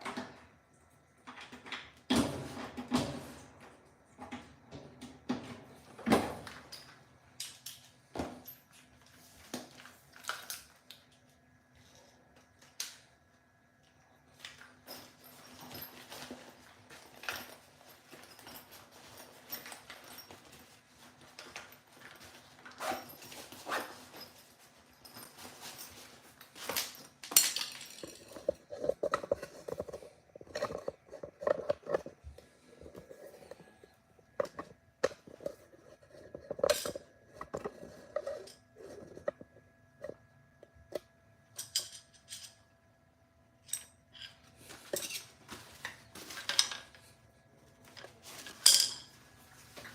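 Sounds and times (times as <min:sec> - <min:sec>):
metal tools clinking: 0:14.4 - 0:35.6, 0:36.2 - 0:39.0, 0:41.6 - 0:42.7, 0:43.6 - 0:47.1, 0:47.8 - 0:49.2.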